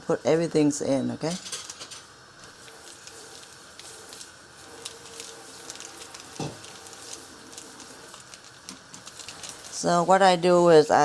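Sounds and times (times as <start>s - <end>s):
pot of water crackling: 0.1s - 11.0s.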